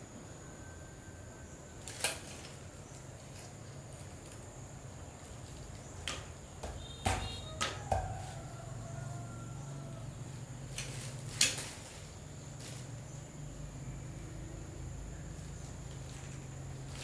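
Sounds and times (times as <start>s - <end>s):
sharp knocks and clicks: 6.0s - 8.3s.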